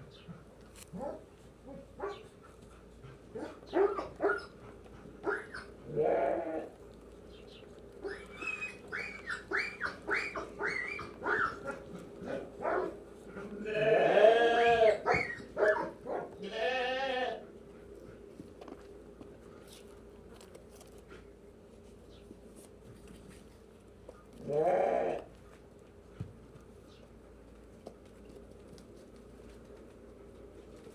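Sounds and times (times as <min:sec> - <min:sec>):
lambs bleating: 0:05.9 - 0:06.7, 0:13.5 - 0:15.3, 0:16.4 - 0:17.4, 0:24.4 - 0:25.3.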